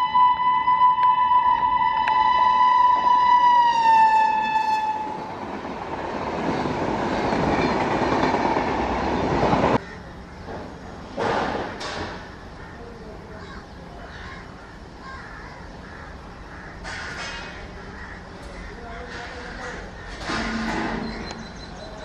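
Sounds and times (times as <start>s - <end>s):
locomotive horn: 0.0s - 5.3s
train coaches rumbling by: 1.9s - 22.0s.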